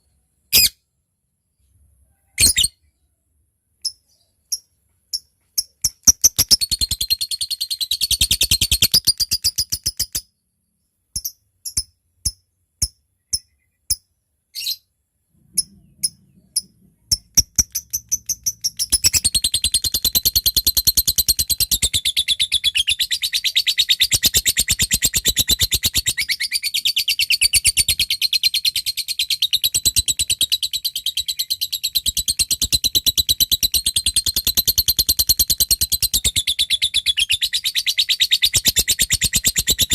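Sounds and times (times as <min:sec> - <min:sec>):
lovebird chattering and ticking: 0:03.8 - 0:10.3, 0:15.5 - 0:39.9.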